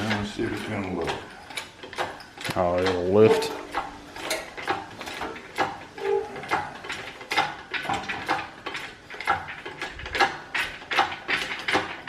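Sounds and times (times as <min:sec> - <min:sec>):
hand ratchet clicking: 0:00.0 - 0:12.0.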